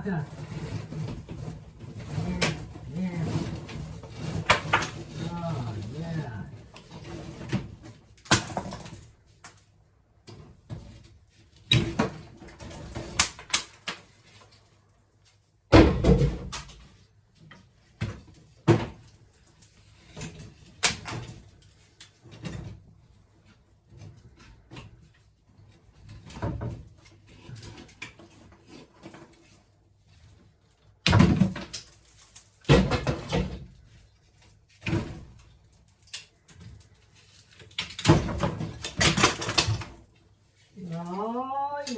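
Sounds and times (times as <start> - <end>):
debris knocking and thumping: 0.0 - 9.1, 31.0 - 34.0, 37.8 - 40.0.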